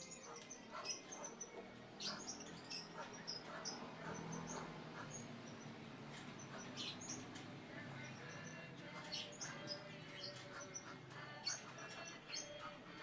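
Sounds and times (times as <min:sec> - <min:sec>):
monkey squeaking and chirping: 0:00.0 - 0:05.7.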